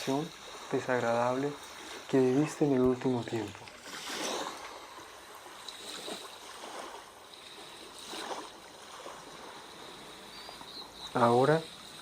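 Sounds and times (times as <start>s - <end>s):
sea waves washing: 0.0s - 12.0s.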